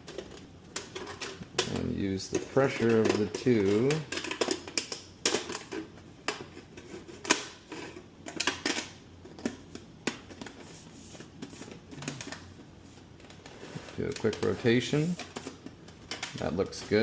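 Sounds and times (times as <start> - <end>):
thin metal sheet clicking and crinkling: 0.0 - 10.2.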